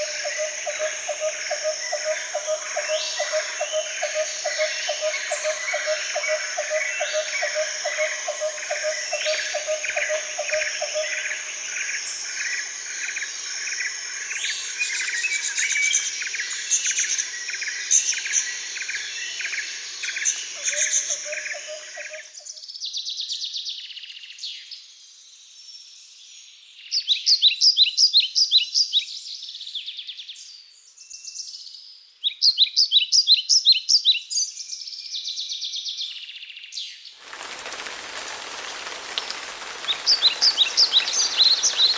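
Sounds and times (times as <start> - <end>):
birds chirping in chorus: 0.0 - 22.2, 37.2 - 41.9
loud rapid bird trills: 37.2 - 41.9.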